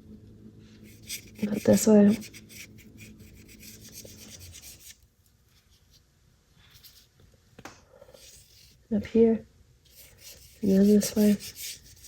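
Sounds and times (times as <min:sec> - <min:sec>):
paintbrush scrubbing paper: 0:00.8 - 0:05.0, 0:08.2 - 0:08.8, 0:09.9 - 0:12.0.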